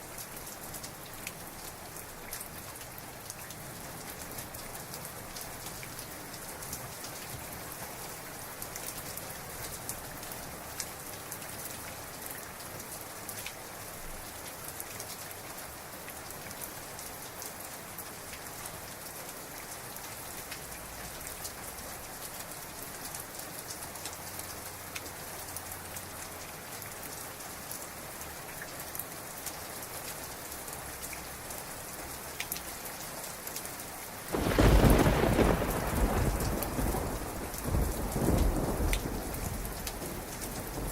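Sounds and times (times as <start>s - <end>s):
heavy rain: 0.0s - 40.9s
sharp raindrop hits: 34.3s - 40.9s
thunder clap: 34.4s - 40.9s.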